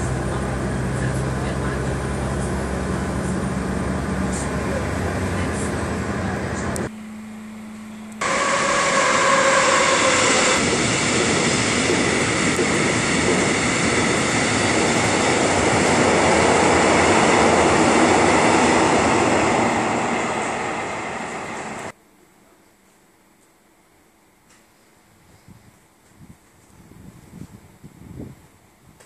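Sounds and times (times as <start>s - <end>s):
diesel train roar: 0.0s - 22.0s.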